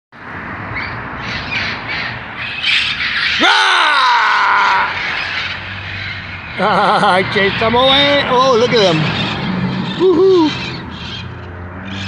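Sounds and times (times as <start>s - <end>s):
parrots squawking: 0.8s - 3.5s, 4.5s - 12.0s
parrot long loud cry: 3.2s - 5.0s.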